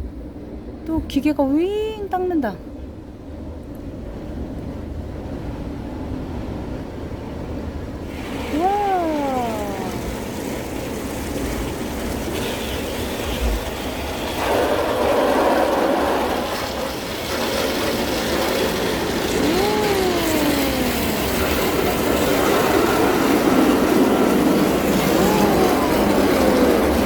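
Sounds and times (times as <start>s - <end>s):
person saying wow: 8.5s - 10.2s, 19.3s - 21.7s, 25.0s - 27.0s.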